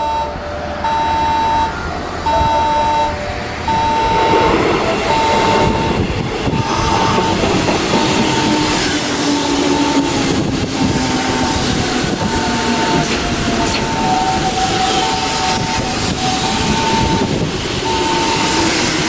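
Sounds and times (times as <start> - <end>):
train whine: 0.0 - 19.0
high electronic beeps: 2.3 - 4.4, 11.3 - 18.6.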